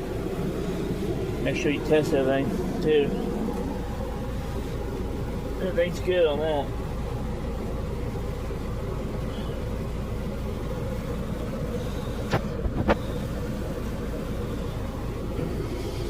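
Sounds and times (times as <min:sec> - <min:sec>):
car engine low rumble: 0:00.0 - 0:16.0.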